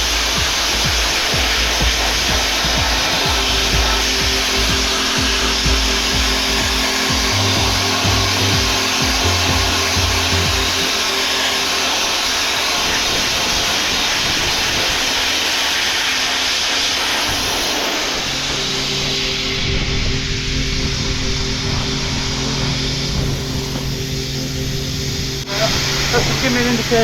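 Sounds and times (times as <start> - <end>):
music with thudding bass beat: 0.0 - 11.0
sandblasting hiss: 0.0 - 19.4.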